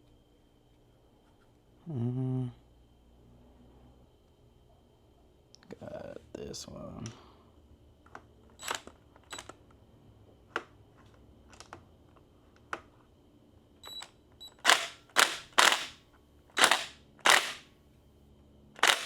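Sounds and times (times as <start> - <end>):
impact driver bursts: 8.6 - 9.5, 14.6 - 17.7, 18.8 - 19.0
sharp tool clicks: 14.6 - 16.0, 16.6 - 17.6, 18.8 - 19.0.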